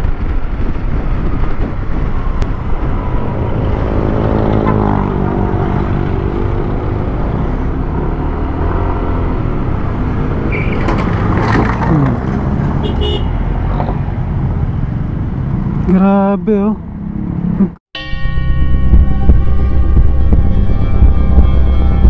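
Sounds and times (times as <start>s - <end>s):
scooter engine hum: 0.0s - 13.4s
wind and road rumble: 0.0s - 17.8s, 18.5s - 22.0s.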